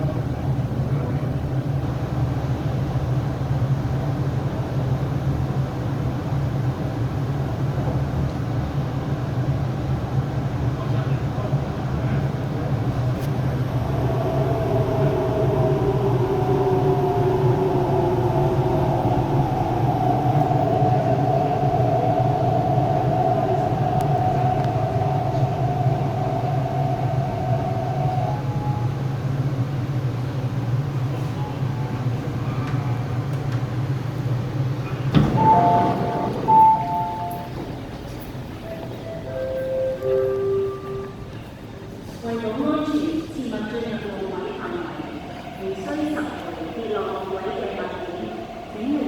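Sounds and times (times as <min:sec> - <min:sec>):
train running with rumble: 0:00.0 - 0:42.2
two-note chime: 0:35.4 - 0:37.6.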